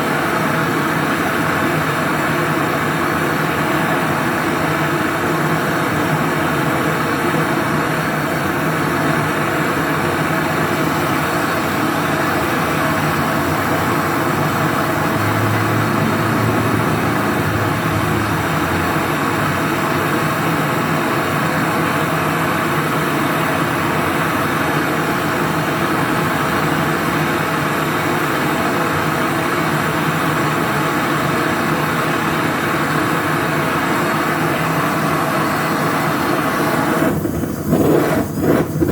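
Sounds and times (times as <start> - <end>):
torch flame hissing: 0.8 - 38.9
low hum: 10.6 - 20.4.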